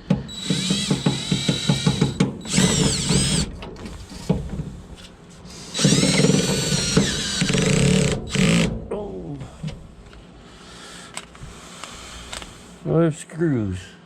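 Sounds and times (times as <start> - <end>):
cordless drill whining and clicking: 0.3 - 4.0, 5.6 - 8.7, 11.1 - 12.6.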